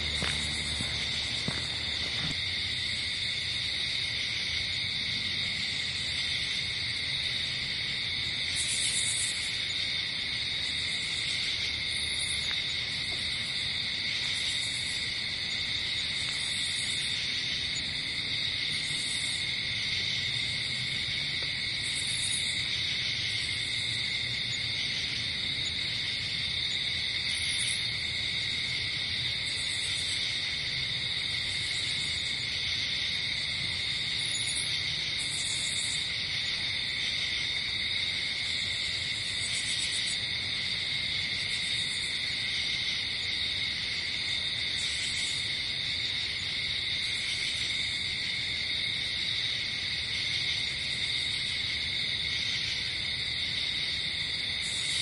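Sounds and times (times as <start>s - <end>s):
insect buzzes: 0.0s - 4.4s
crickets trilling: 0.0s - 55.0s.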